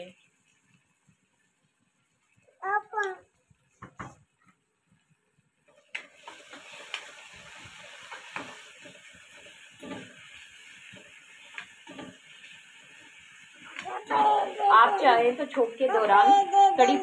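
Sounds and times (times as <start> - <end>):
vegetables sizzling in hot oil: 0.0 - 3.8, 5.6 - 17.0
spatula scraping a pan: 6.2 - 13.2.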